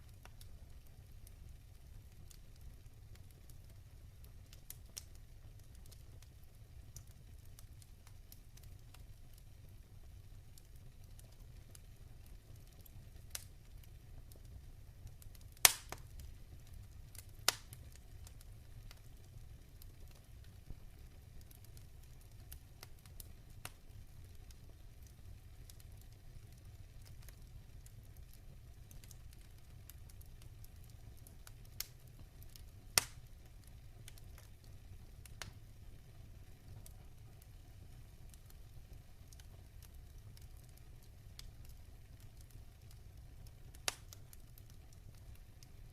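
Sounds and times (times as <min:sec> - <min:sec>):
wood fire crackling: 0:00.0 - 0:45.9
sharp pops from fire: 0:04.2 - 0:09.5, 0:10.6 - 0:35.6, 0:39.2 - 0:45.9.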